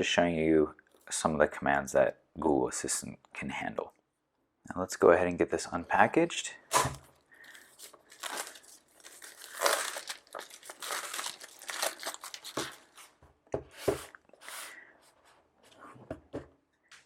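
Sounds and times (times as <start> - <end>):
plastic shrink wrap tearing and crinkling: 7.0 - 13.2.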